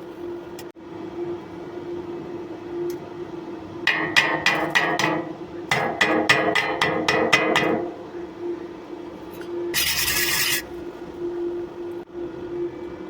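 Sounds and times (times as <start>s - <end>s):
steady low hum: 0.0s - 13.0s
hammer striking steel: 3.9s - 7.9s.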